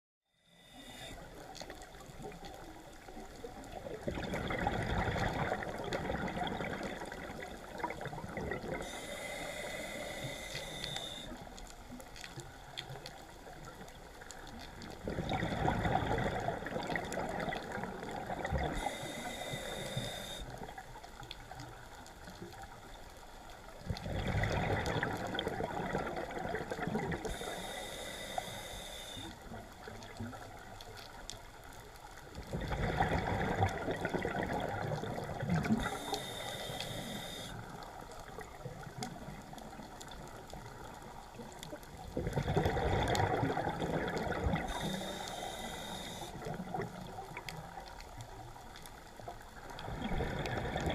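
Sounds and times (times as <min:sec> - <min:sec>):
regulator hiss on inhale: 0:00.4 - 0:01.9, 0:08.6 - 0:12.6, 0:18.4 - 0:20.8, 0:27.1 - 0:29.6, 0:34.1 - 0:38.6, 0:44.4 - 0:46.8
exhaled bubbles gushing: 0:03.7 - 0:08.9, 0:14.9 - 0:18.9, 0:23.8 - 0:27.4, 0:32.4 - 0:36.1, 0:41.4 - 0:45.0, 0:49.6 - 0:50.9.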